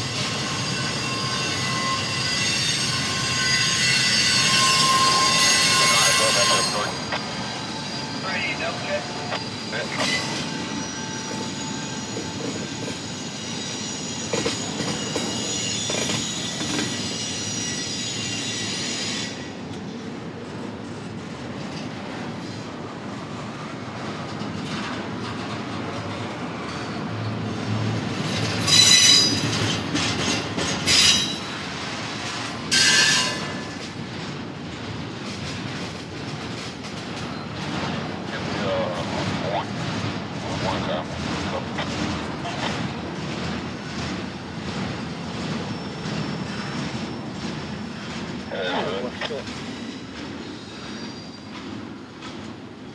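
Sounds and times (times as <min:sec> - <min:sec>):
wheels squealing: 0:00.0 - 0:19.0
train cars rolling on rails: 0:00.0 - 0:52.9.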